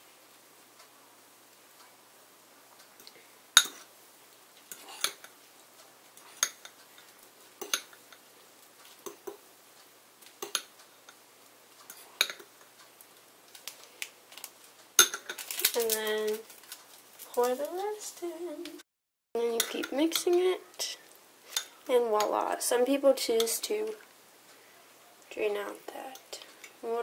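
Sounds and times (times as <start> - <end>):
fork clinking against bowl: 7.6 - 8.0.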